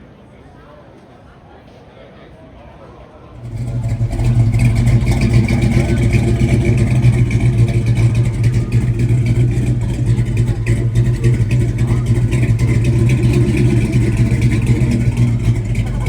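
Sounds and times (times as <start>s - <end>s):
background voices: 3.3s - 16.0s
car engine humming: 3.4s - 16.0s.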